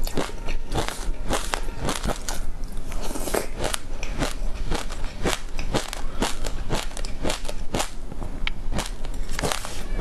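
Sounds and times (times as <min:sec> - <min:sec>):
mouth crunching seeds: 0:00.0 - 0:08.0, 0:08.7 - 0:09.8.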